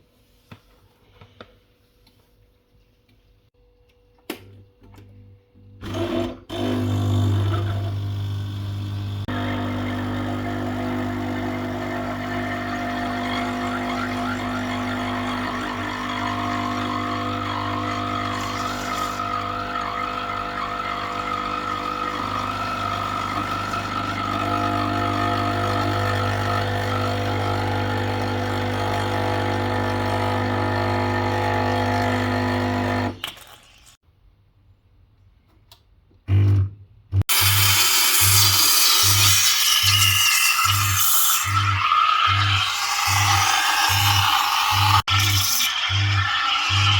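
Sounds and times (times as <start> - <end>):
espresso machine pump humming: 6.0 - 33.1, 40.8 - 46.9.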